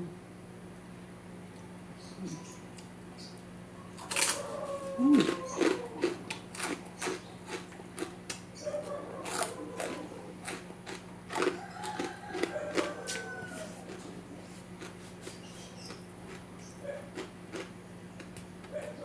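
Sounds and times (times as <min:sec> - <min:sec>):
chewing crunchy pork cracklings: 0:01.4 - 0:19.0.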